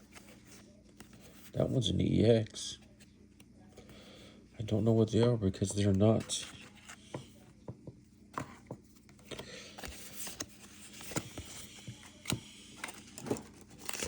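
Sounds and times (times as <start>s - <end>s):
cards sliding against cards: 9.2s - 13.2s.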